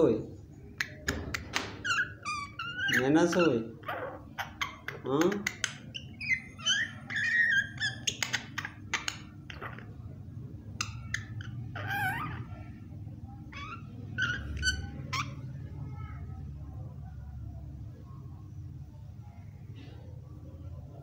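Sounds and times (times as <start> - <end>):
myna bird calling: 0.6 - 15.8.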